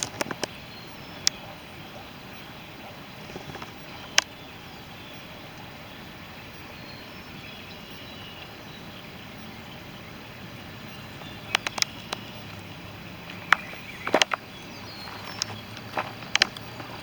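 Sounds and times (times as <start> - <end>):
background hiss: 0.0 - 17.0
sharp clicks and taps: 11.4 - 12.6, 13.2 - 17.0.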